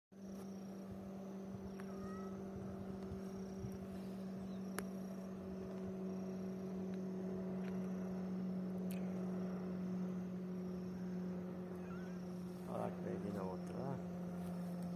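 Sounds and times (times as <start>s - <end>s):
boat motor running: 0.2s - 14.9s
faint ticks: 4.6s - 5.0s, 8.8s - 9.2s.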